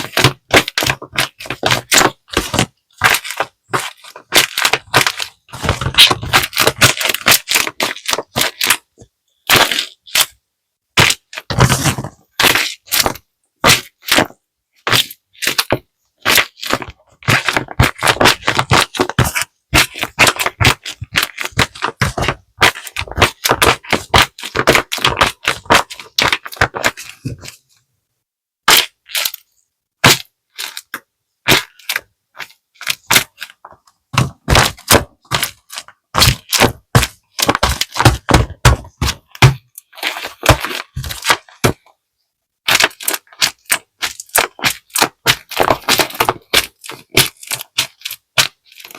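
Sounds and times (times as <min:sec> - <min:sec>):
paper crinkling and crackling: 0:42.7 - 0:48.9.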